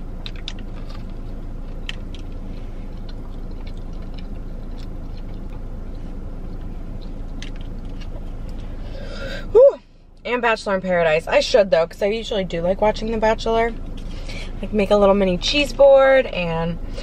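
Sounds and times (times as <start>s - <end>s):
person chewing: 0.0s - 9.0s
low hum: 0.0s - 17.0s.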